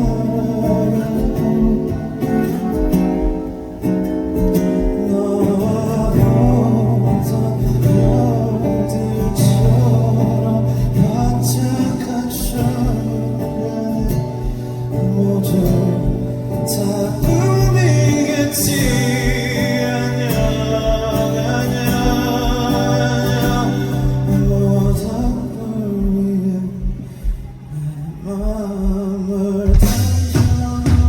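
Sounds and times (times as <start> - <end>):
live band slow song: 0.0 - 31.0
man singing: 0.0 - 31.0.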